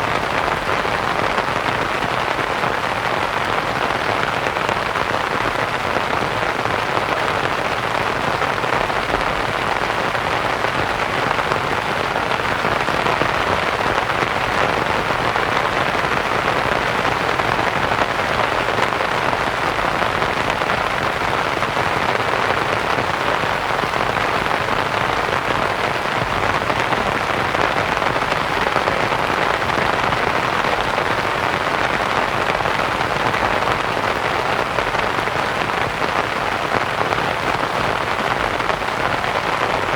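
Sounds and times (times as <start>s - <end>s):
rain on a canvas tent: 0.0s - 39.9s.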